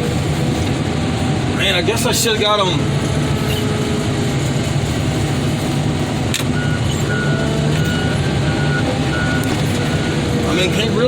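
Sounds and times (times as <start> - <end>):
diesel engine running: 0.0 - 11.0
reversing alarm beeping: 6.5 - 10.6.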